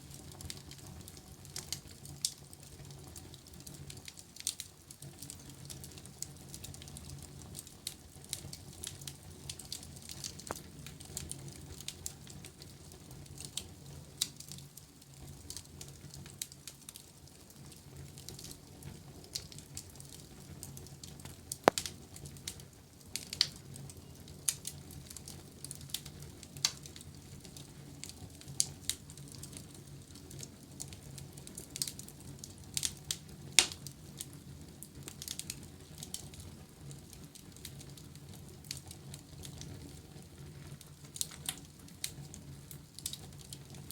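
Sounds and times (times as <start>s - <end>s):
wood fire crackling: 0.0s - 43.9s
loud fire snap: 20.7s - 23.6s, 32.7s - 34.3s.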